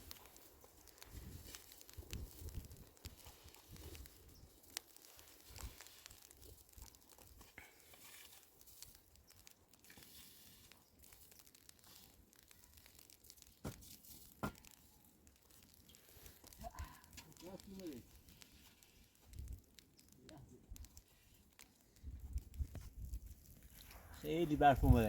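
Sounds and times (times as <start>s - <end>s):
faint rustling and crackling: 0.0s - 25.0s.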